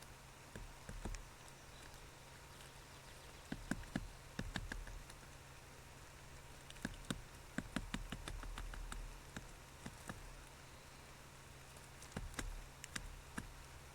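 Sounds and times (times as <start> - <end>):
low electrical hum: 0.0 - 13.9
sharp taps and clicks: 0.5 - 1.2, 3.5 - 5.2, 6.7 - 10.2, 12.0 - 13.5.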